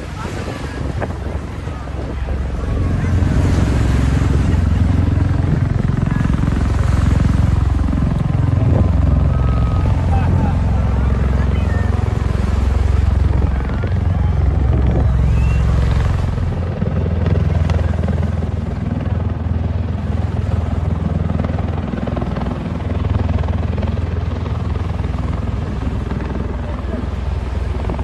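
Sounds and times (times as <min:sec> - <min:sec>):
deep aircraft rotor drone: 0:00.0 - 0:28.0.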